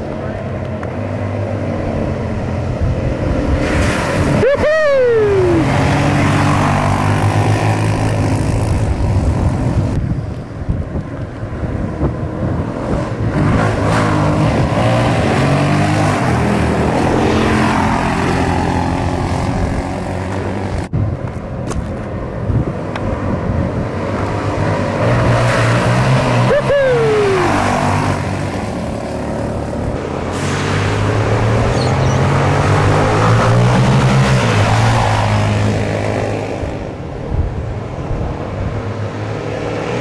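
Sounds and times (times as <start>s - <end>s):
wind noise on microphone: 2.2s - 5.8s, 7.2s - 15.4s, 19.0s - 25.4s, 35.5s - 39.1s
dirt bike engine revving: 25.0s - 36.7s.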